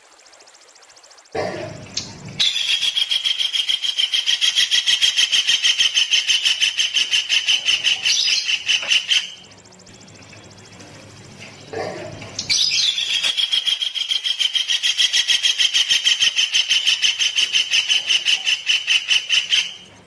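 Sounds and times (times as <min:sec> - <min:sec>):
songbird rapid trill: 0:02.0 - 0:09.4, 0:12.4 - 0:19.9.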